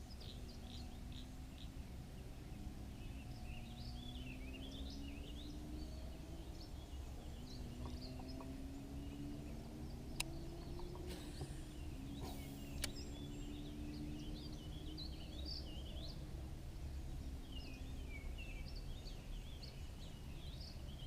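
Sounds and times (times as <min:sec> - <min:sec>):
birds chirping and warbling: 0:00.0 - 0:21.0
sharp click: 0:12.2 - 0:13.0.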